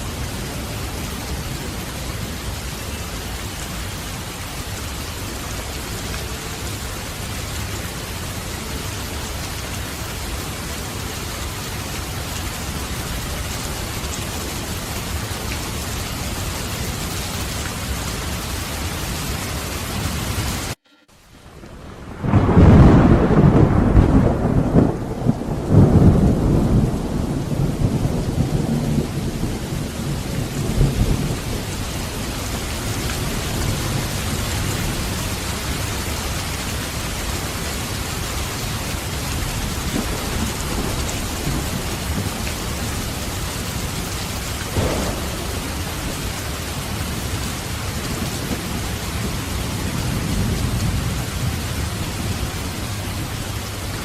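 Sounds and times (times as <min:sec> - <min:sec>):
heavy rain: 0:00.0 - 0:54.0
thunder rumbling: 0:00.0 - 0:54.0
distant thunder crack: 0:21.5 - 0:31.8, 0:39.6 - 0:52.3.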